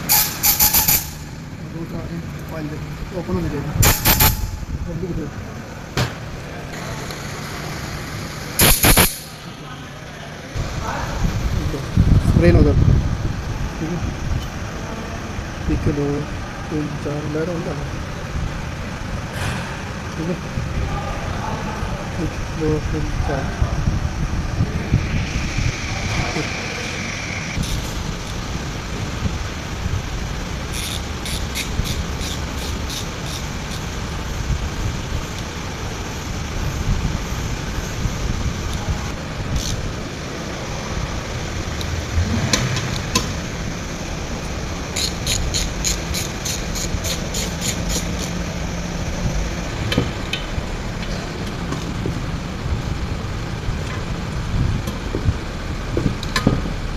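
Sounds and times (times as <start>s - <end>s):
low workshop rumble: 0.0s - 56.9s.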